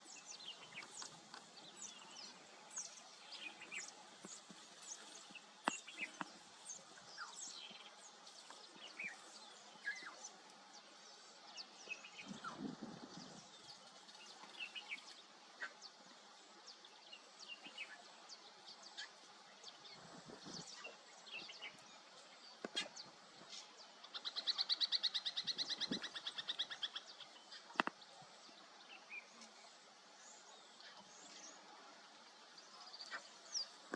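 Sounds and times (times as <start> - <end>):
wild birds chirping: 0.0 - 33.9.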